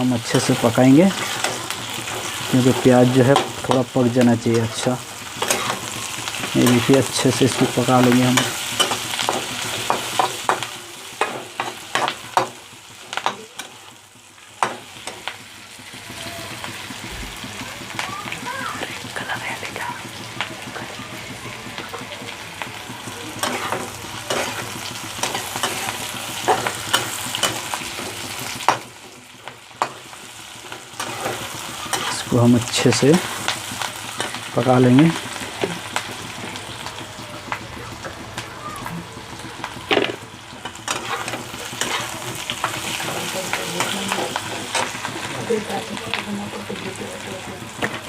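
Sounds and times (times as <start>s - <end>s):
onion and chillies sizzling in oil: 0.0s - 48.0s
spatula scraping a pan: 0.3s - 3.8s, 4.5s - 12.5s, 23.4s - 28.9s, 29.8s - 32.3s, 40.6s - 45.4s.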